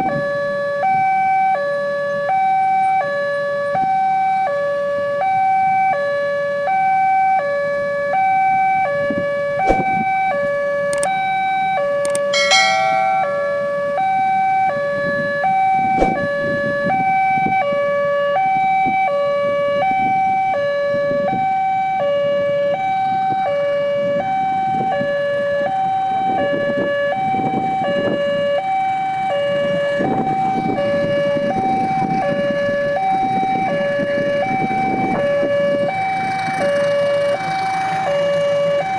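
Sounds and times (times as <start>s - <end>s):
two-tone crossing warning alarm: 0.0s - 38.9s
short high-pitched beep: 12.4s - 13.8s
road traffic noise: 28.6s - 38.9s.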